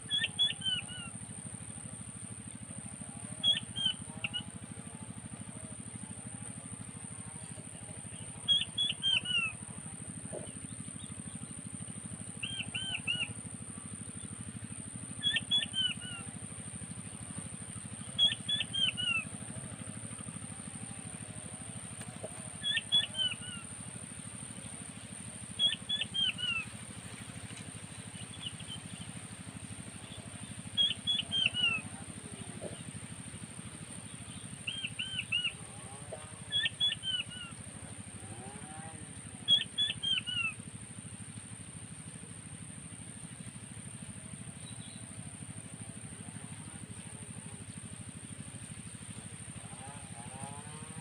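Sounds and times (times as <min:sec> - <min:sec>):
quail calling with whistled notes: 0:00.1 - 0:01.1, 0:03.4 - 0:04.5, 0:08.4 - 0:09.6, 0:12.4 - 0:13.3, 0:15.2 - 0:16.3, 0:18.1 - 0:19.3, 0:22.6 - 0:23.7, 0:25.6 - 0:26.7, 0:30.1 - 0:32.0, 0:34.6 - 0:37.6, 0:39.5 - 0:40.6.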